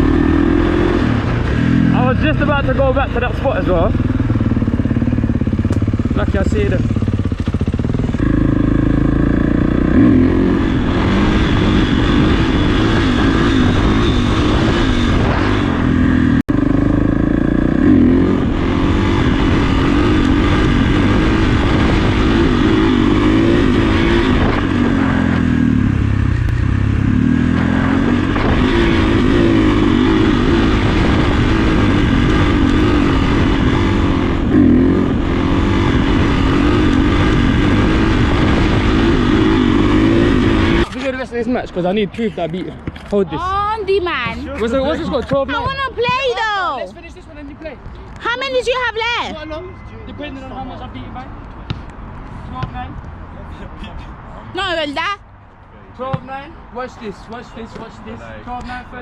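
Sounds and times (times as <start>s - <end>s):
dirt bike engine revving: 0.0s - 41.2s.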